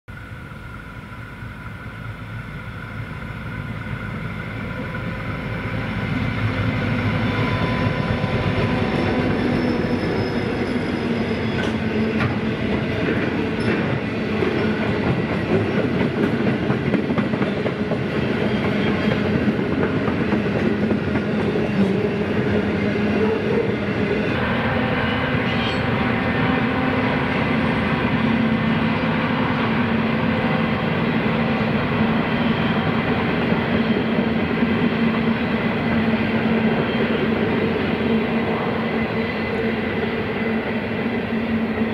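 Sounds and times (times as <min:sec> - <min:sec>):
diesel locomotive engine: 0:00.1 - 0:41.9
train crossing a bridge: 0:00.1 - 0:41.9.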